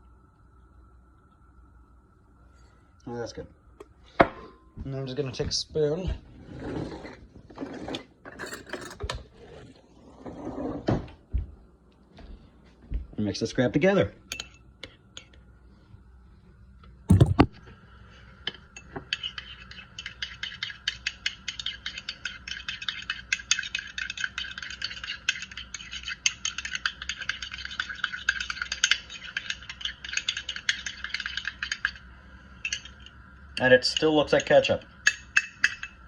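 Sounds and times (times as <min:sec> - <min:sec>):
spoon scraping a dish: 0:06.4 - 0:10.8, 0:18.8 - 0:32.0.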